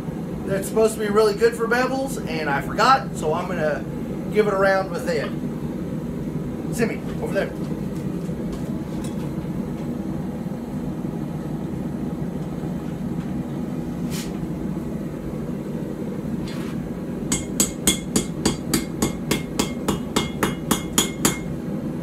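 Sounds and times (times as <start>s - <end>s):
forging hammer ringing on anvil: 17.3s - 21.6s.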